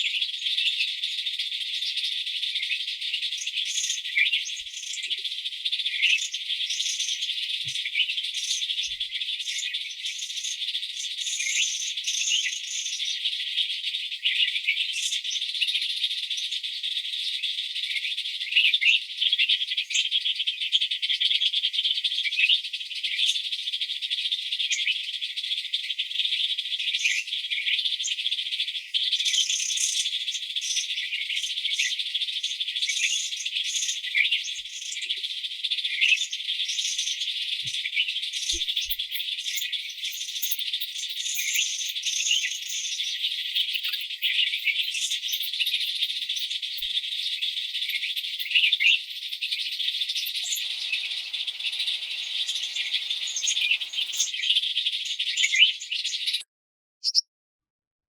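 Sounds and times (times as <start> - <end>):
high-pitched insect chorus: 38.6 - 54.5.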